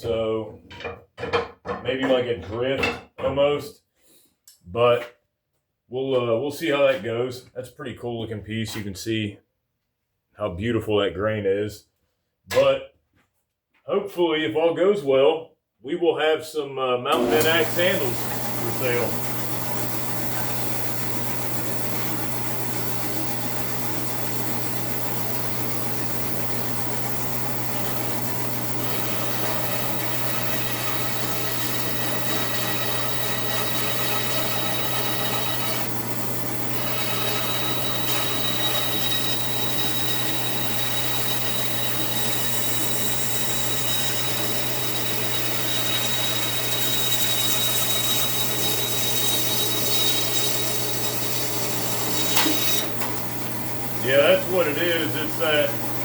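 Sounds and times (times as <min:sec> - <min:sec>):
bandsaw cutting wood: 0:17.2 - 0:23.9, 0:28.0 - 0:56.0
thin high tone: 0:17.2 - 0:56.0.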